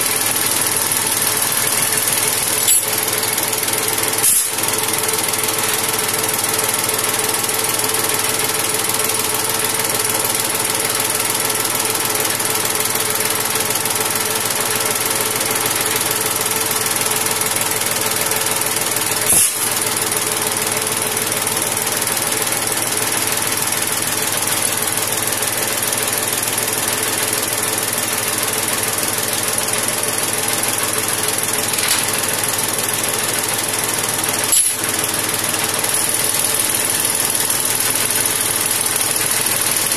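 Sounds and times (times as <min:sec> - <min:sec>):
machinery clattering: 0:00.0 - 0:05.8.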